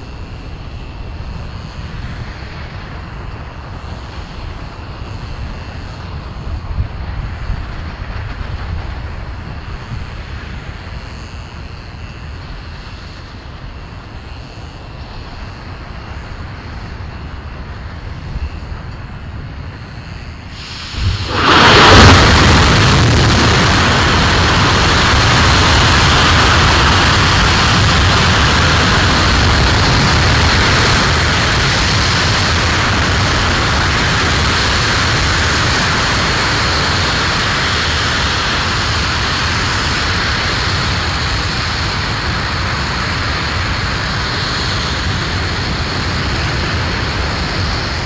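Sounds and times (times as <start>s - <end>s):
rocket engine firing: 20.4s - 48.0s.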